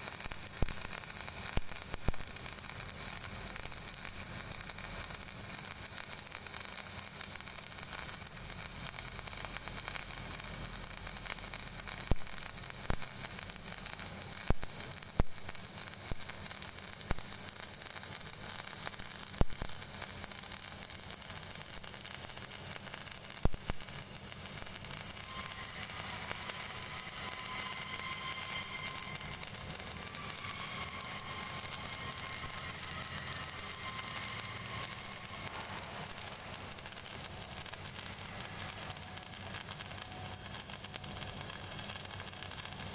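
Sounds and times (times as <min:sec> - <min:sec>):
welding arc crackling and hissing: 0:00.0 - 0:42.9
faint high whine: 0:22.8 - 0:42.9.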